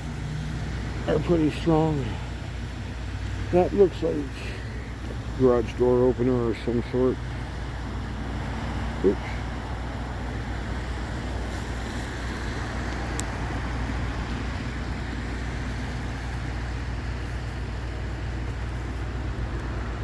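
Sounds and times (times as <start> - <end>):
traffic noise: 0.0 - 20.0
vehicle engine idling: 0.0 - 20.0
faint tick: 12.9 - 13.3.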